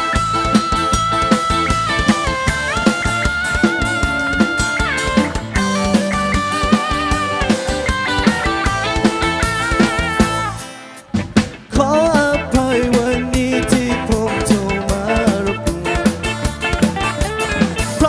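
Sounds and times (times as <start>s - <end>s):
lead melody with pitch slides: 0.0s - 10.7s
steady drum beat: 0.0s - 18.0s.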